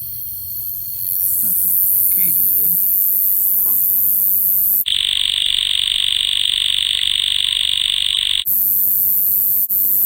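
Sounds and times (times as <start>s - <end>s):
high-pitched night insect chorus: 0.0s - 10.0s
loud pulsing insect buzz: 0.0s - 10.0s.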